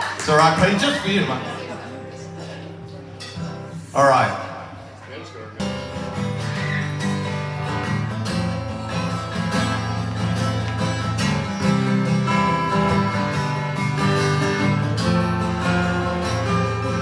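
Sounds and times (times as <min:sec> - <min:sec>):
acoustic guitar strumming chords: 0:00.3 - 0:04.9, 0:05.6 - 0:17.0.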